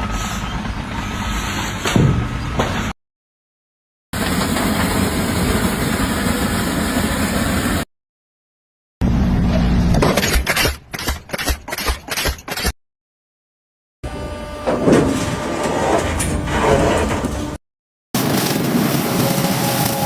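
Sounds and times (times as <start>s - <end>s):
engine-like machine noise: 0.0s - 3.0s, 4.2s - 7.9s, 18.2s - 20.0s.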